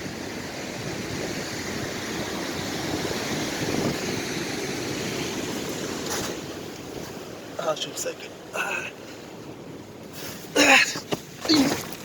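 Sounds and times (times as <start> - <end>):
wind over microphone: 0.0 - 7.4
rough sea surf: 0.0 - 12.0.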